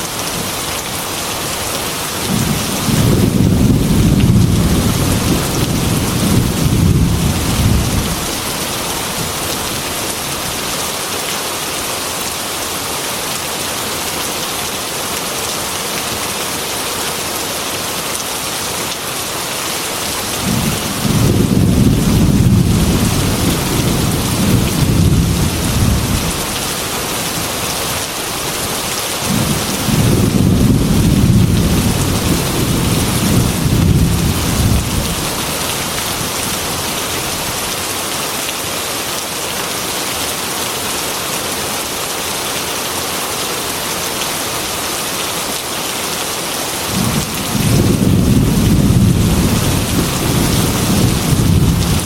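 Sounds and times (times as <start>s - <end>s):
heavy rain on a window: 0.0s - 52.0s
rolling thunder: 2.3s - 8.4s, 20.4s - 26.5s, 29.3s - 35.7s, 46.9s - 52.0s.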